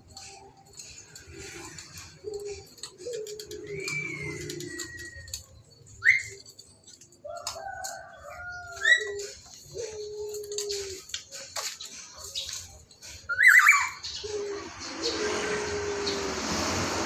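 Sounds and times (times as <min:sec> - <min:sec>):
bird whistling calls: 0:02.2 - 0:06.6, 0:08.7 - 0:11.1, 0:13.2 - 0:16.4.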